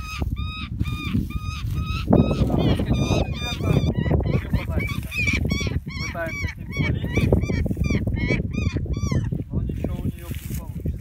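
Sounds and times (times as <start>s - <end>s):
bird calling in harsh notes: 0.0s - 9.4s
wind rumbling on microphone: 0.0s - 11.0s.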